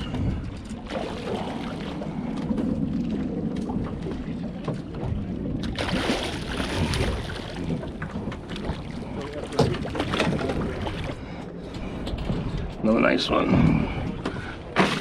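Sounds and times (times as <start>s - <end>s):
water noise: 0.0s - 15.0s
wind: 0.0s - 15.0s.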